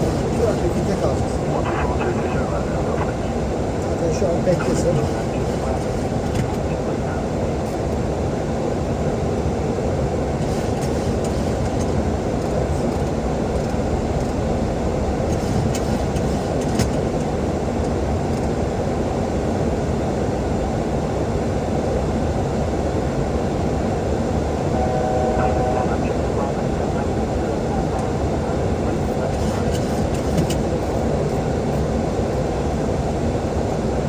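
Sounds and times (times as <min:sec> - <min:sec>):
cockpit air rush and engine rumble: 0:00.0 - 0:34.0.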